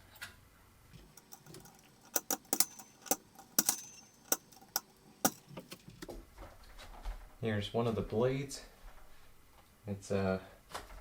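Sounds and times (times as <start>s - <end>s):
plastic parts clicking: 1.0s - 6.2s.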